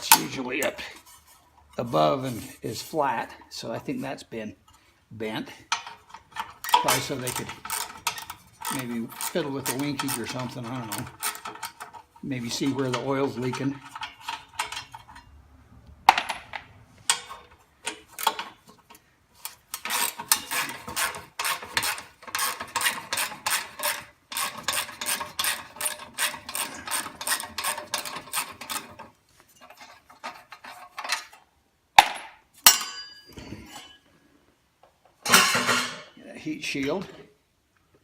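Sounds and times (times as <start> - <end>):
metal knocks and clanks: 35.2 - 36.2.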